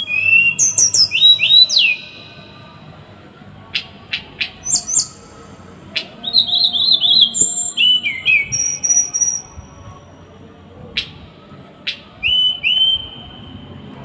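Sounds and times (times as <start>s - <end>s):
small songbird singing: 0.0s - 2.6s, 3.7s - 10.0s.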